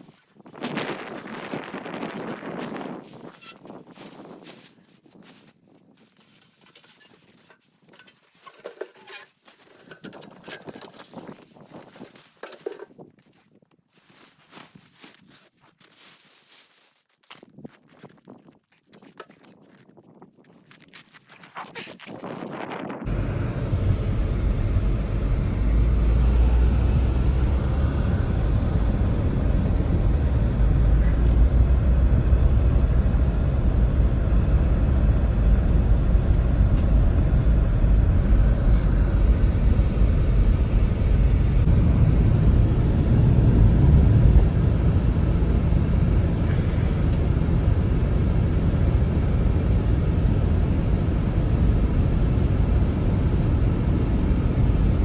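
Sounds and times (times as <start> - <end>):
strong blizzard wind blowing: 22.2 - 55.0.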